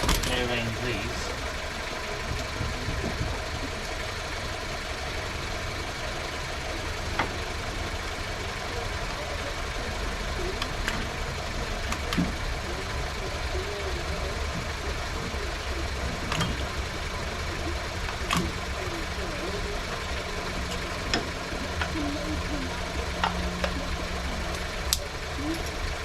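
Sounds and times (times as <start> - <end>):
engine idling rumble: 0.0 - 26.0.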